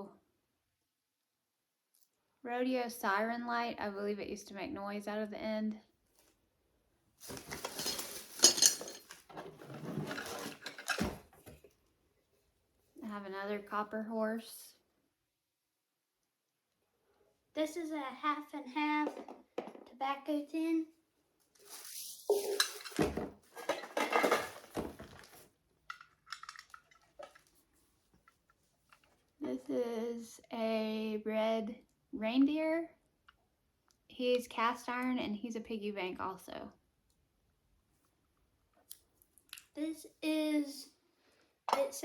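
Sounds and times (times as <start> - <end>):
metal items rattling and clinking: 7.2 - 11.5, 21.7 - 27.4
rustling: 7.2 - 11.7, 21.4 - 25.5
metal pieces clinking and tapping: 7.6 - 9.2.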